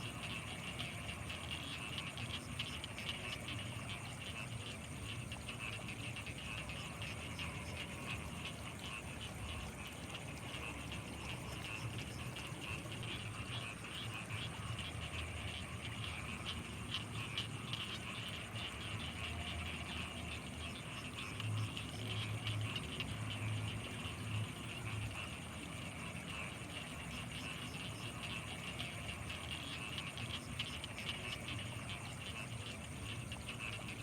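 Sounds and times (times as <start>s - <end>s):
frogs croaking: 0.0s - 34.0s
insects chirring: 0.0s - 34.0s.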